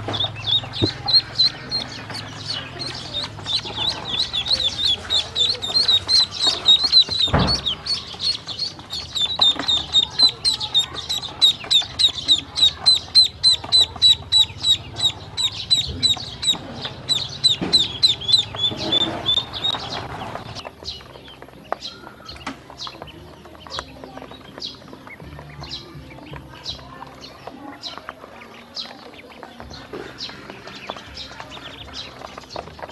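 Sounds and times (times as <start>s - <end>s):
ducklings peeping: 0.0s - 32.9s
thump: 7.1s - 7.8s.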